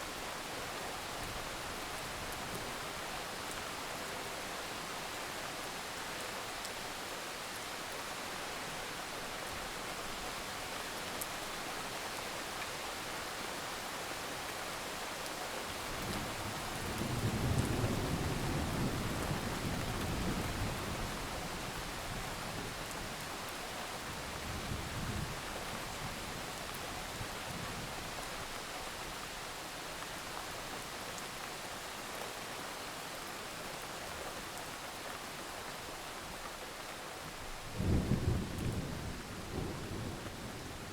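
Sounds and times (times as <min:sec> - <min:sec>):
heavy rain hiss: 0:21.6 - 0:40.9.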